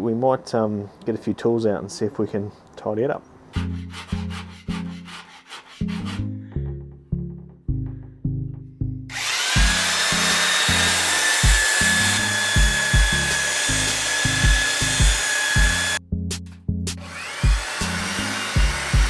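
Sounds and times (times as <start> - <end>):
power tool whining: 9.1 - 16.0, 17.0 - 19.0
background music with beat: 11.4 - 11.8, 12.5 - 19.0.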